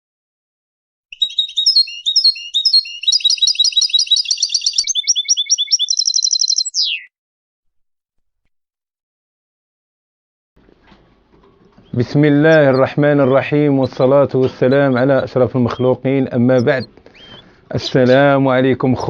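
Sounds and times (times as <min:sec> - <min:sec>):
goldfinch singing: 0:01.1 - 0:07.1, 0:11.8 - 0:19.0.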